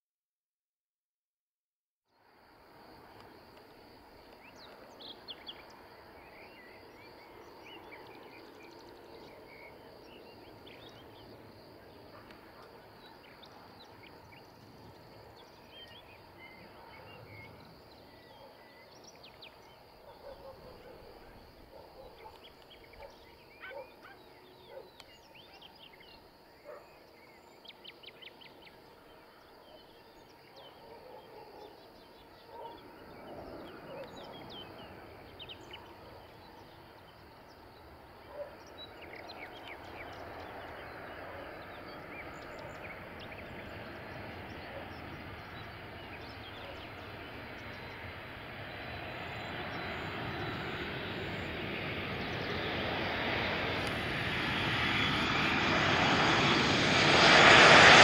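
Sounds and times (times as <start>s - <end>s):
faint outdoor background: 2.0s - 58.0s.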